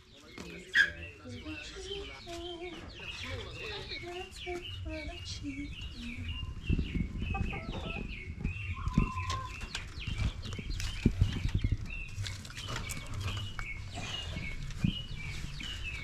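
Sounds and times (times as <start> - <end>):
birds chirping: 0.0 - 16.0
low rumbling: 1.8 - 16.0
knocks and rustles: 8.8 - 16.0.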